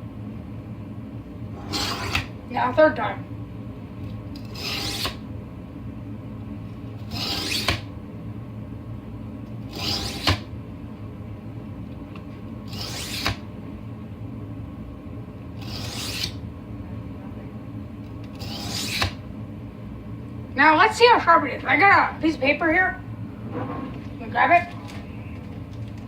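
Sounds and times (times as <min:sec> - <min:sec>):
knife rasping on whetstone: 0:01.6 - 0:02.3, 0:04.5 - 0:05.2, 0:07.1 - 0:07.8, 0:09.7 - 0:10.4, 0:12.7 - 0:13.4, 0:15.6 - 0:16.4, 0:18.4 - 0:19.2.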